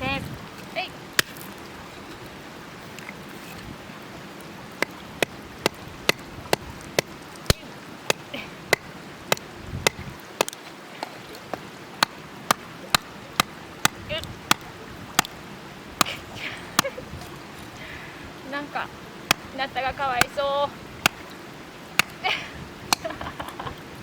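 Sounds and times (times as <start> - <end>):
hatchet chopping firewood: 1.1 - 1.6, 4.7 - 17.6, 19.1 - 22.3, 22.9 - 23.2.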